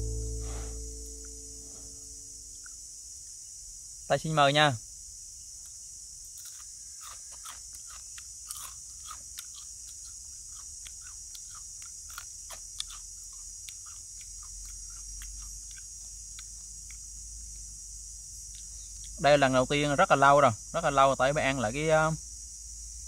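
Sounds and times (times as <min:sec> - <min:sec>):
chewing crunchy crab shells: 0:06.3 - 0:19.2.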